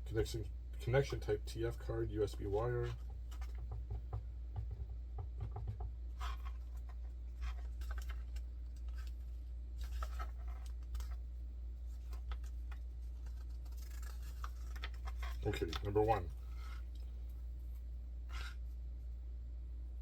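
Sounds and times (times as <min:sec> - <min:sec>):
low hum: 0:05.9 - 0:20.0
paper rustling: 0:06.2 - 0:11.2, 0:11.8 - 0:18.7
small parts scraping and clicking: 0:06.2 - 0:11.2, 0:11.9 - 0:17.4.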